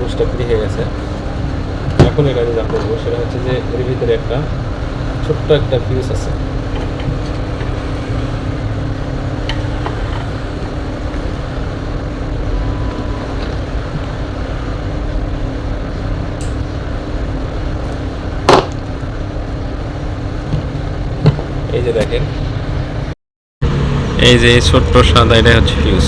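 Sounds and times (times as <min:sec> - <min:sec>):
faint hum: 0:00.0 - 0:23.1
low background rumble: 0:00.0 - 0:23.1
sharp knock: 0:18.5 - 0:18.8.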